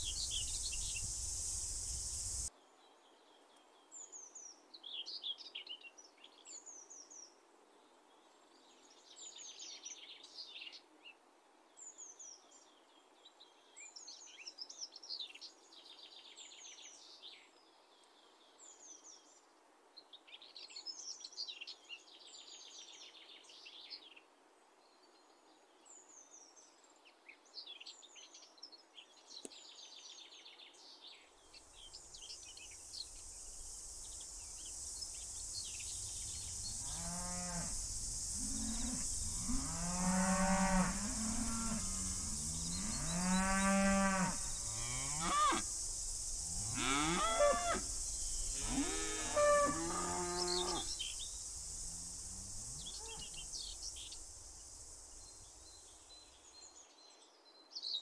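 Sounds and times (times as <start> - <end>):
small birds chirping: 0.0 - 2.5, 29.4 - 56.7
steady high hiss: 0.0 - 2.5, 30.8 - 56.8
cows mooing: 38.4 - 45.6, 46.6 - 47.9, 48.5 - 50.9.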